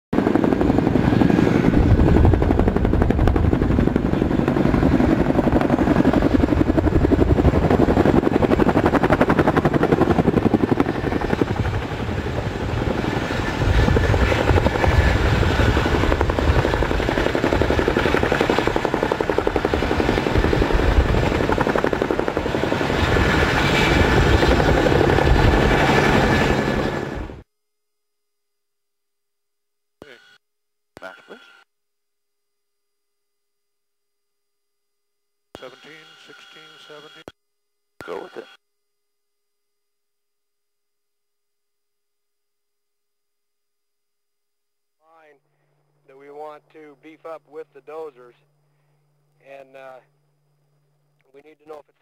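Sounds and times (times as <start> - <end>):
helicopter rotor chopping: 0.2 - 27.4.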